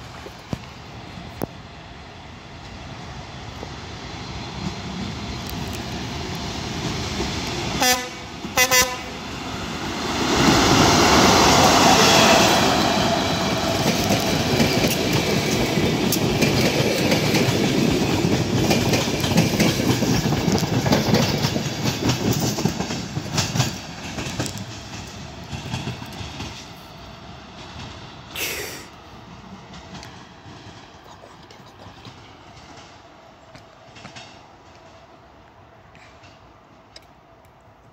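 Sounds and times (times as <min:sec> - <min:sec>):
electric locomotive passing: 0:00.0 - 0:37.9
wheels clacking over rail joints: 0:10.2 - 0:26.8.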